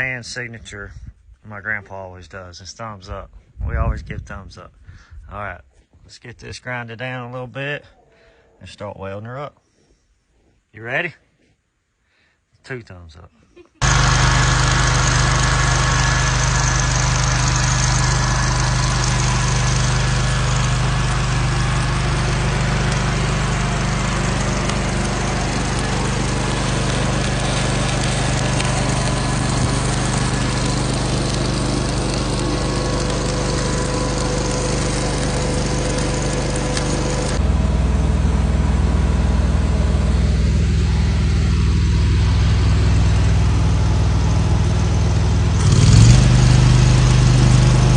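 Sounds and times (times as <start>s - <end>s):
engine running steadily: 13.8s - 47.9s.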